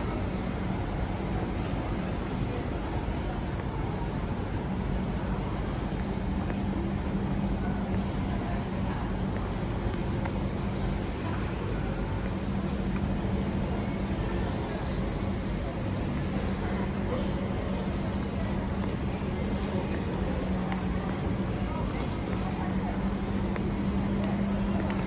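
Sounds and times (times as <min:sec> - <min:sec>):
train rumbling inside carriage: 0:00.0 - 0:25.0.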